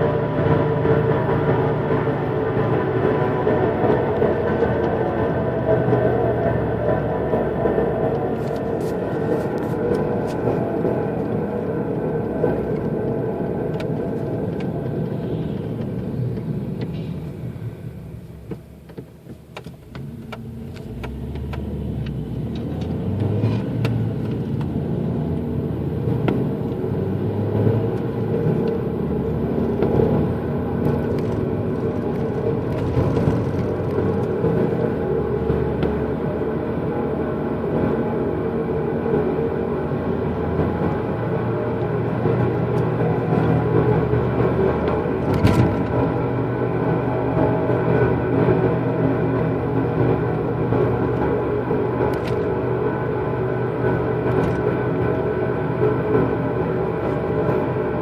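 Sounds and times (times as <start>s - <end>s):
low rumbling drone: 0.0s - 18.5s, 20.4s - 58.0s.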